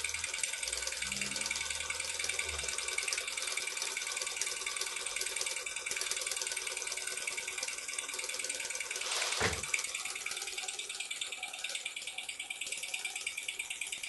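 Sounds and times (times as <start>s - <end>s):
model steam engine exhaust hissing: 8.7s - 10.2s.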